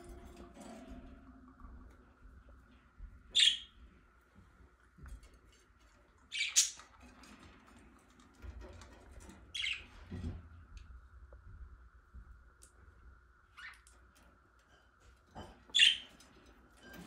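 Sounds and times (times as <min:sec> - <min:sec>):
pet birds chirping: 0:03.2 - 0:03.9, 0:06.2 - 0:06.9, 0:09.5 - 0:10.0, 0:13.5 - 0:13.9, 0:15.7 - 0:16.2.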